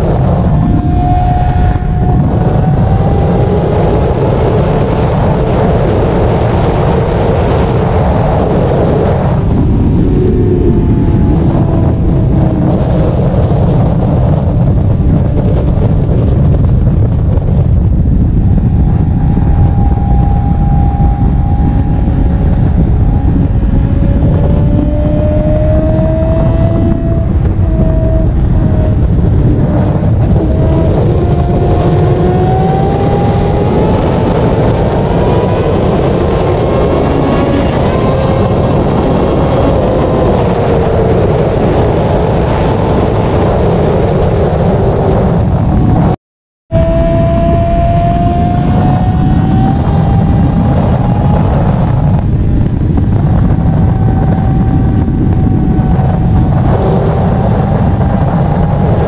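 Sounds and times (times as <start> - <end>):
motorcycle engine running at high speed: 0.0 - 59.0
wind rush on microphone: 0.0 - 59.0.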